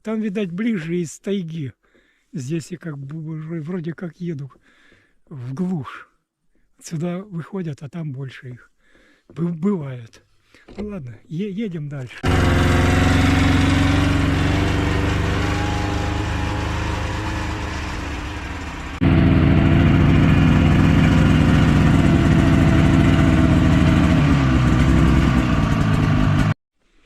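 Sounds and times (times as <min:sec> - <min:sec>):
vehicle engine droning: 0:12.2 - 0:26.5.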